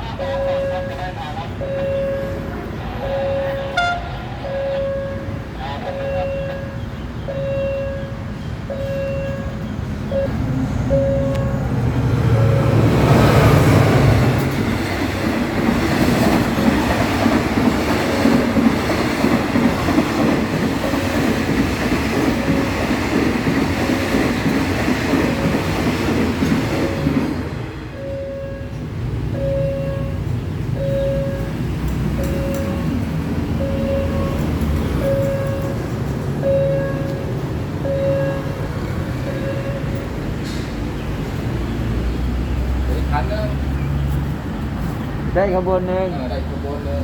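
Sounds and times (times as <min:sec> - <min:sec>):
crossing warning signal tone: 0:00.0 - 0:24.6, 0:26.5 - 0:40.4
train engine rumble: 0:00.0 - 0:47.0
train wagons rattling: 0:00.0 - 0:47.0.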